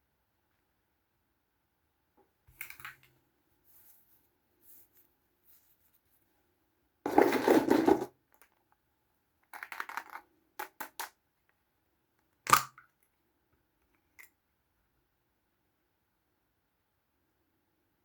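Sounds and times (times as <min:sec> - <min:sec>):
plastic packaging rustling: 0:07.1 - 0:08.1
plastic toys clicking and tapping: 0:09.4 - 0:11.2.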